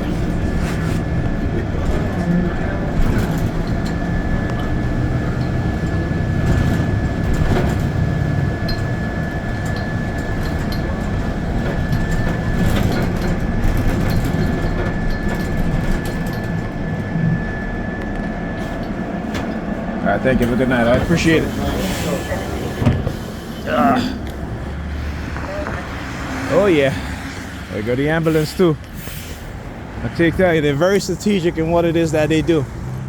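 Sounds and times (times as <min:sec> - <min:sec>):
high whine: 0:00.0 - 0:21.8
bus engine and road rumble: 0:00.0 - 0:33.0
rattles: 0:01.2 - 0:19.8.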